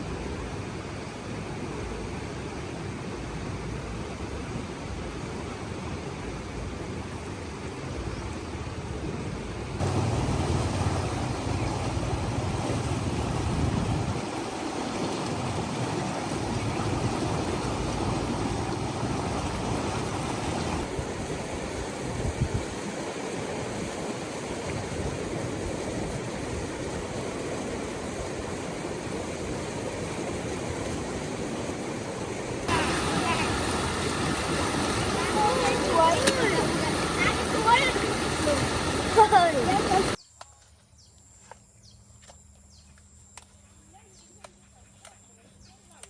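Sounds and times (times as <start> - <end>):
flowing water rushing: 9.8 - 40.2.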